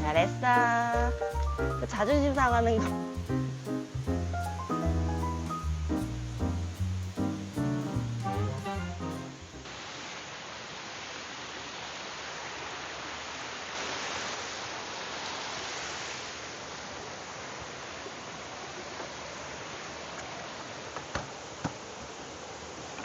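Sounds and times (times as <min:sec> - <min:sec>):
heavy rain: 0:00.0 - 0:23.0
rushing mountain stream: 0:07.1 - 0:23.0.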